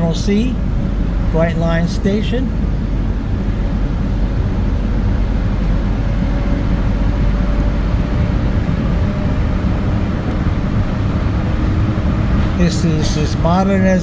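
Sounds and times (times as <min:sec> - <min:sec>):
tram running rumble: 0:00.0 - 0:14.0.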